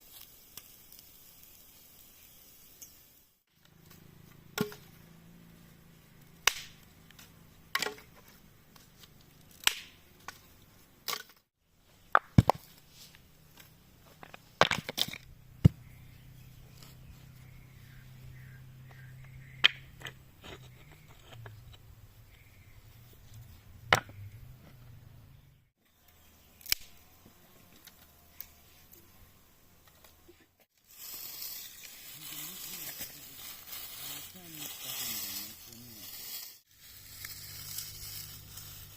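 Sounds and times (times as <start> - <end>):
sharp cracks and knocks: 6.3 - 11.4, 12.1 - 12.8.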